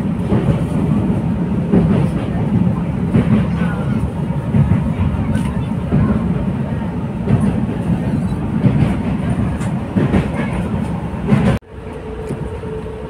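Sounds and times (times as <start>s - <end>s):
train rumbling on track: 0.0s - 13.0s.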